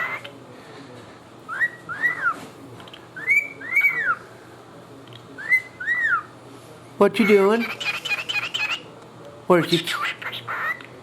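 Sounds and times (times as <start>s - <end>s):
cockatiel whistling: 1.5s - 2.4s, 3.2s - 4.2s, 5.4s - 6.3s.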